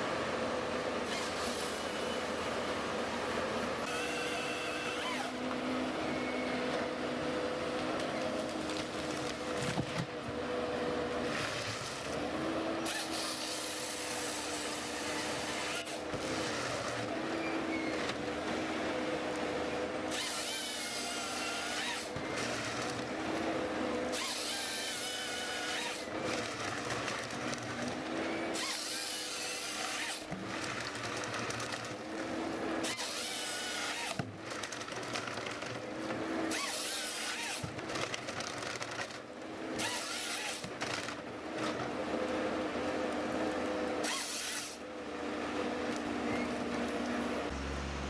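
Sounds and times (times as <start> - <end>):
power tool working wood: 3.9 - 5.7, 11.2 - 38.2, 39.8 - 41.2, 44.0 - 44.8.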